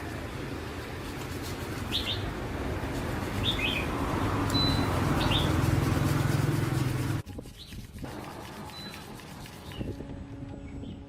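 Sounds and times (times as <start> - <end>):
small birds chirping: 1.5 - 2.3, 3.3 - 5.7, 7.4 - 8.0, 8.7 - 10.0
low mechanical hum: 8.0 - 11.0.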